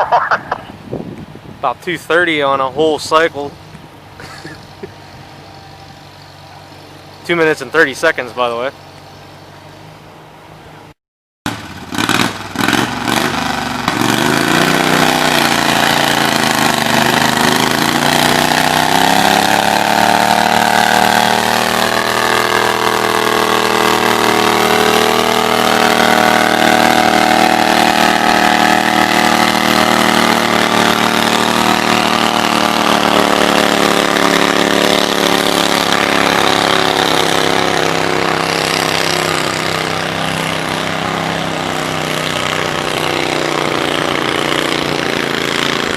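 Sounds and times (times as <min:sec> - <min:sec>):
tractor engine revving: 0:00.0 - 0:00.9, 0:11.5 - 0:45.9.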